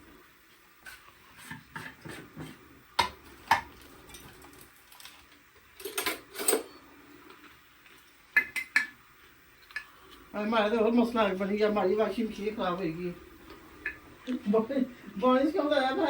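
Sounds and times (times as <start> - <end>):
utensils and dishes clattering: 5.8 - 6.8.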